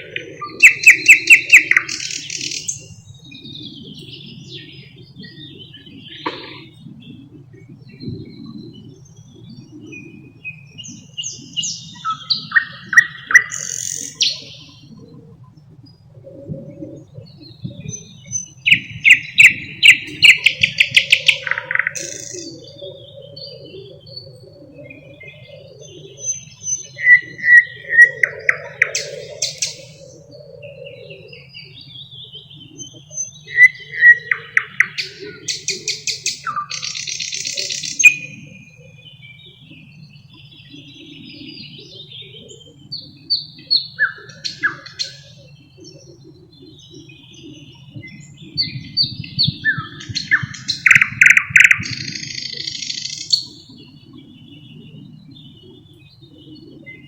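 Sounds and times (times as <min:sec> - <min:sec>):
nightingale singing: 0:00.0 - 0:07.2, 0:07.9 - 0:15.1, 0:16.7 - 0:57.0.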